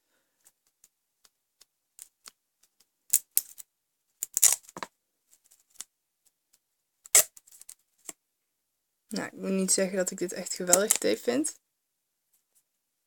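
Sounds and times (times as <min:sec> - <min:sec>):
duct tape ripping off roll: 0:04.2 - 0:04.8, 0:07.1 - 0:07.7.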